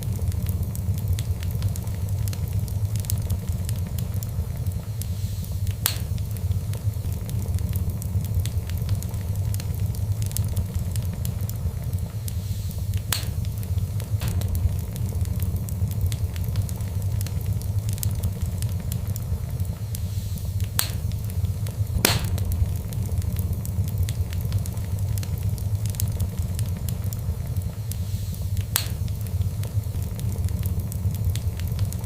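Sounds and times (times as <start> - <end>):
fireplace fire crackling: 0.0 - 32.0.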